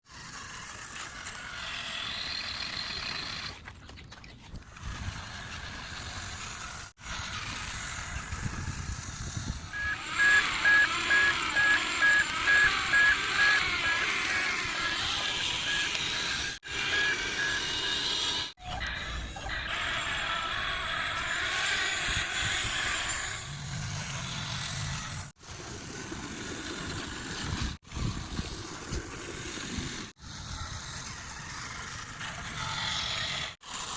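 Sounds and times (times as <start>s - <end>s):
repeating electronic beep: 9.8s - 18.5s
mechanical or musical sound: 9.8s - 19.9s.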